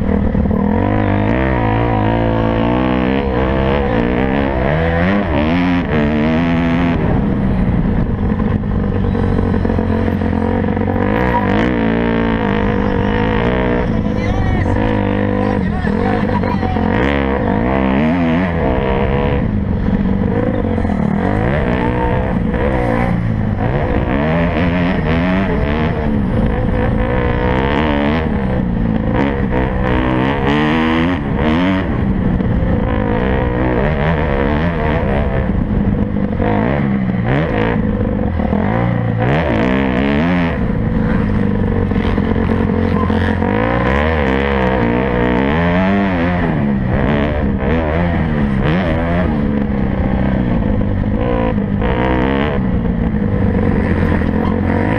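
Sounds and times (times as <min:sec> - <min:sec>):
dirt bike engines racing: 0:00.0 - 0:54.9.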